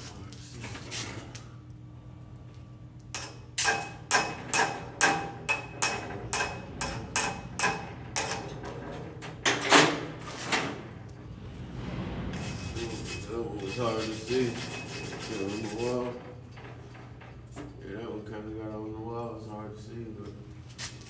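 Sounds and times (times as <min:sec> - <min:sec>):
hammer striking steel: 0:03.2 - 0:08.4.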